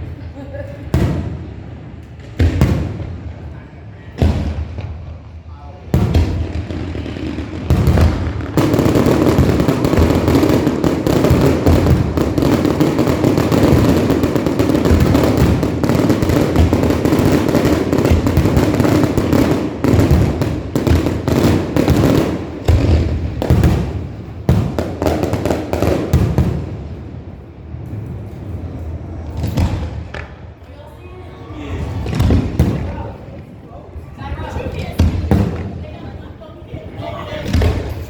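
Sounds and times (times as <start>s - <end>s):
fireworks booming and crackling: 0.0s - 38.0s.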